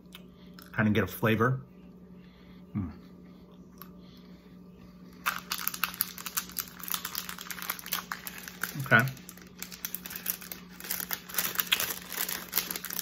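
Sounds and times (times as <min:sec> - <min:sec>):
crisp crunching chewing: 0:05.1 - 0:13.0.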